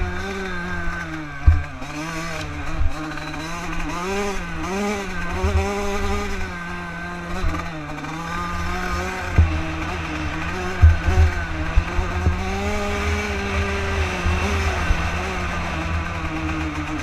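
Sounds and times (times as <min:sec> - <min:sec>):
dirt bike engine revving: 0:00.0 - 0:17.0
low thumps: 0:09.3 - 0:17.0.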